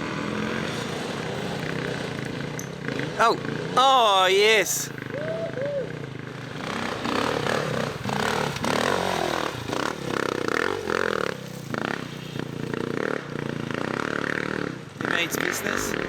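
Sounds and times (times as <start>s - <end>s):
dirt bike engine revving: 0.0s - 5.2s, 5.8s - 16.0s
bike scraping and clattering: 6.6s - 12.9s.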